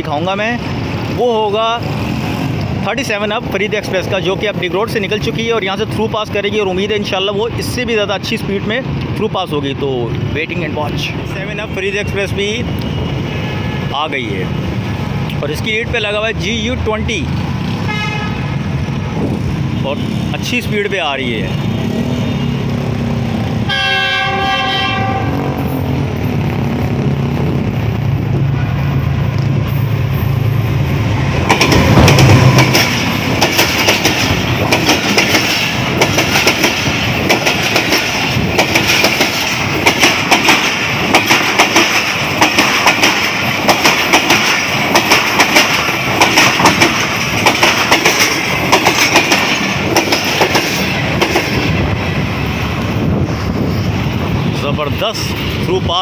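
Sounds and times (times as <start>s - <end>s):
diesel locomotive engine drone: 0.0s - 56.0s
train horn chord: 17.9s - 18.5s, 23.7s - 25.8s
wheels clacking over rail joints: 29.2s - 52.6s.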